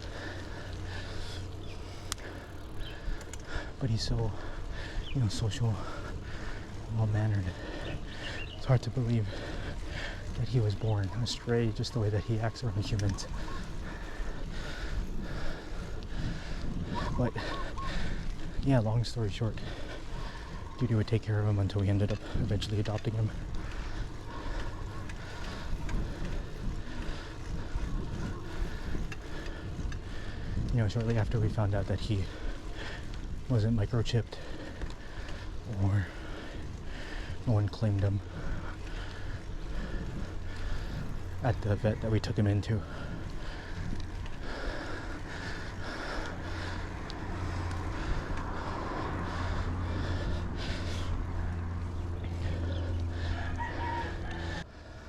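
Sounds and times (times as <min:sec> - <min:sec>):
faint clicks: 0:00.0 - 0:03.7, 0:12.9 - 0:16.2, 0:43.4 - 0:48.8
wind rushing over microphone: 0:00.0 - 0:54.7
steady low hum: 0:00.0 - 0:55.0
roosters crowing: 0:52.4 - 0:54.6.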